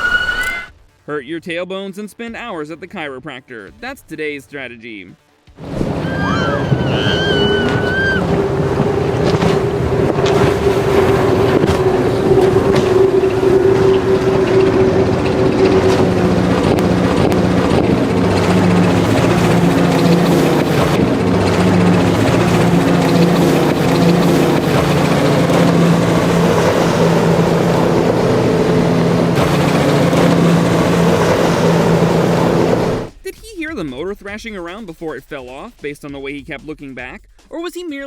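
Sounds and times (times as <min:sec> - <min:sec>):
rushing water: 0:05.6 - 0:33.1
wind: 0:05.6 - 0:33.1
motorboat engine drone: 0:05.6 - 0:33.2.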